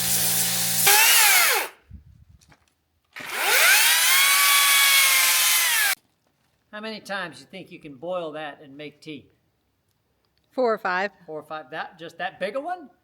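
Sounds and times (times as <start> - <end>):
pressure washer hissing: 0.0 - 1.7
electric power tool whining: 0.0 - 1.8, 3.2 - 6.0.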